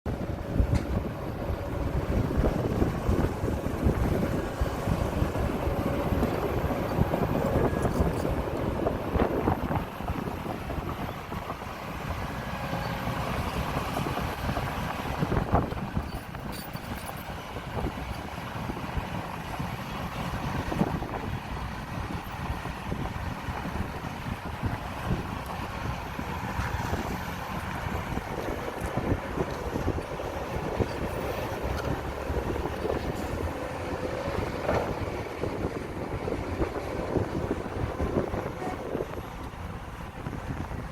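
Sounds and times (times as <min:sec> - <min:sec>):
diesel engine rumbling: 0:00.1 - 0:40.9
knocks and clanks: 0:34.6 - 0:35.0.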